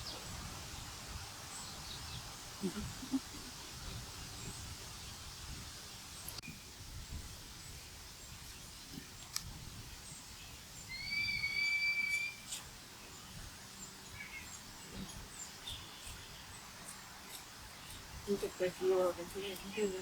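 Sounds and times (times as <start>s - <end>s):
outdoor ambience: 0.0s - 20.0s
bird whistled call: 10.9s - 12.6s.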